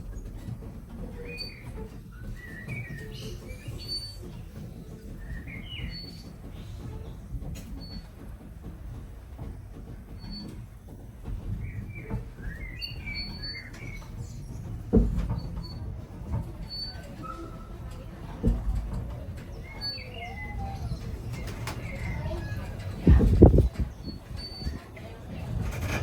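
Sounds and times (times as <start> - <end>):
steam train rumble: 0.0 - 26.0
small birds chirping: 1.1 - 7.2, 19.2 - 25.2.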